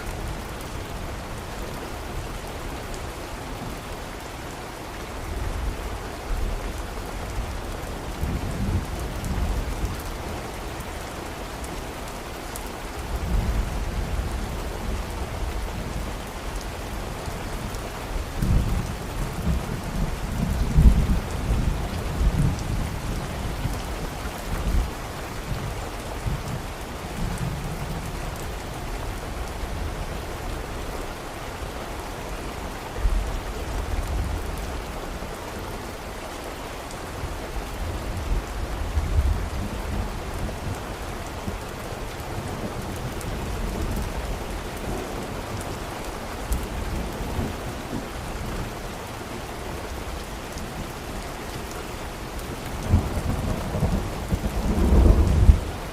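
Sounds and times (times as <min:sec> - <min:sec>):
heavy rain: 0:00.0 - 0:55.9
thunder rumbling: 0:52.8 - 0:55.8.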